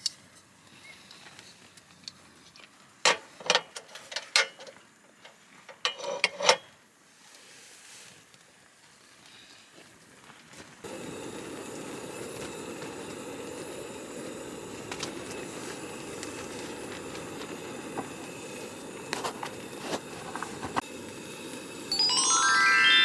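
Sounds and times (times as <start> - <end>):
campfire burning with pops: 10.8 - 21.8
rising run of musical notes: 21.9 - 23.0.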